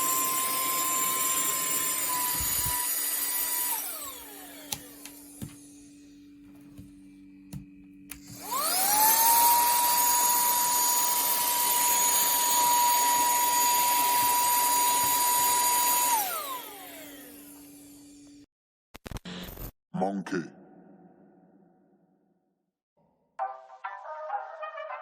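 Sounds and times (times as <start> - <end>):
handheld vacuum whining: 0.0 - 6.8, 8.1 - 18.4.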